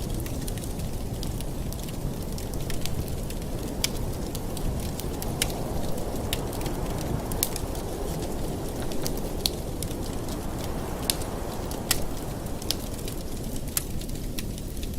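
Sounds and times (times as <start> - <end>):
low rush of burning: 0.0 - 14.9
wood fire crackling: 0.0 - 14.9.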